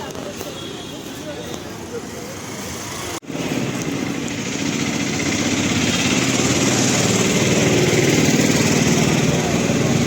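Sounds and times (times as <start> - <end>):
small engine running: 3.3 - 10.0.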